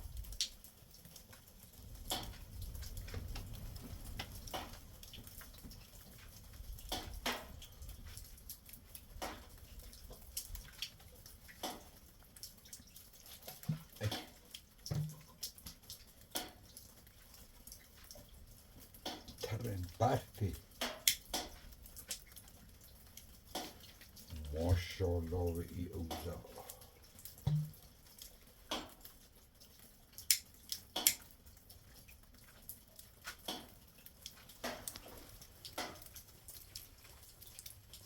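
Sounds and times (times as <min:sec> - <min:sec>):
small clicks and knocks: 0:00.2 - 0:17.1, 0:18.9 - 0:19.4, 0:20.6 - 0:24.3, 0:27.2 - 0:38.0.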